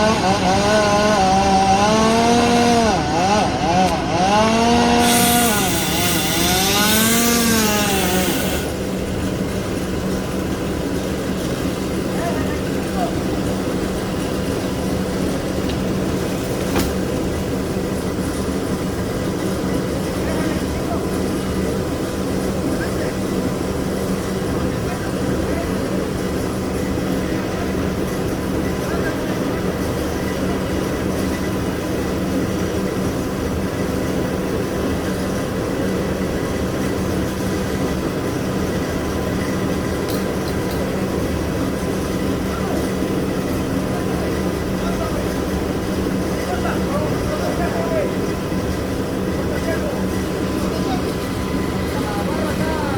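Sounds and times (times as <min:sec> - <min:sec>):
motor humming: 0:00.0 - 0:09.4
engine running steadily: 0:00.0 - 0:52.9.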